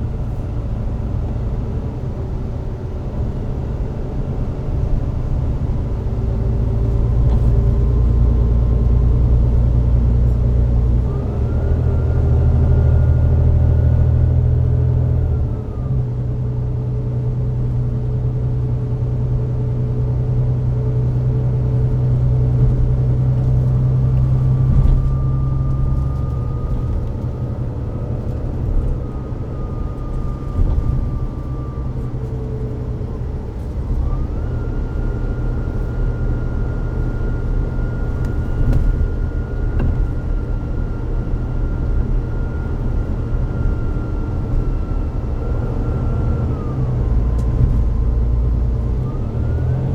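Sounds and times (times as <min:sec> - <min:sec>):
bus diesel engine drone: 0:00.0 - 0:49.9
gearbox whine: 0:21.1 - 0:49.9.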